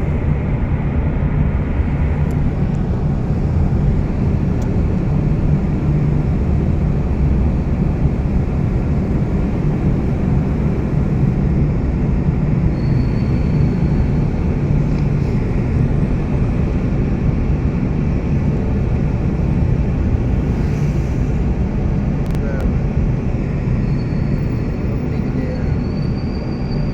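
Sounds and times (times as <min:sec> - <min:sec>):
vehicle road and engine rumble: 0:00.0 - 0:26.9.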